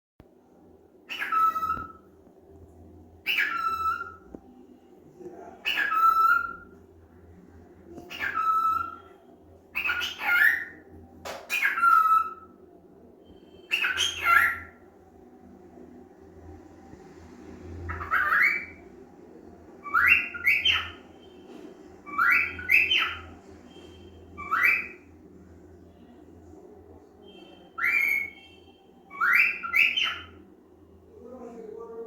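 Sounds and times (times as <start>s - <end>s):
cockatiel mimicking call: 3.2s - 4.2s, 8.1s - 9.0s, 9.7s - 10.8s, 13.6s - 14.8s, 17.9s - 18.8s.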